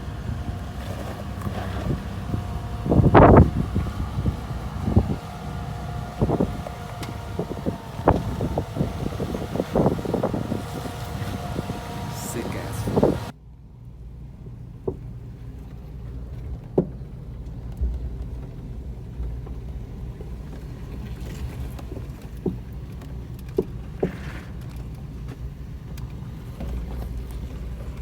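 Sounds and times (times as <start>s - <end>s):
truck engine running: 0.0s - 13.3s.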